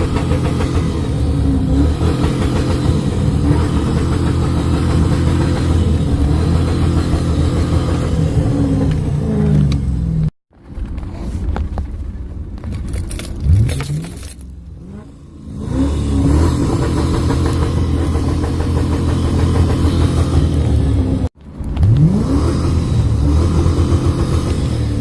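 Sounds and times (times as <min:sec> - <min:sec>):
engine revving through exhaust: 0:00.0 - 0:10.3, 0:14.7 - 0:25.0.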